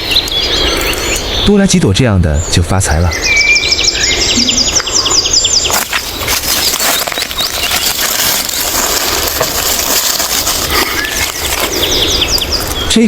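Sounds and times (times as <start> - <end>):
rustling and crackling: 5.6 - 12.8.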